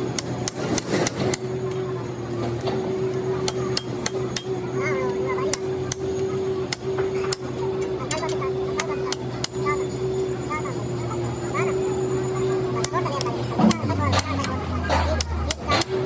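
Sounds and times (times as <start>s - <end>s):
machine hum: 13.5s - 16.0s.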